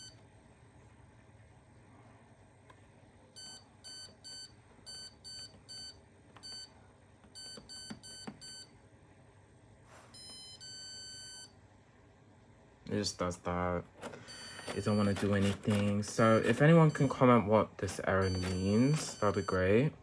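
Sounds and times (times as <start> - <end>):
program dial clicks: 14.0 - 17.2, 17.8 - 19.6
short electronic beeps: 18.1 - 19.7.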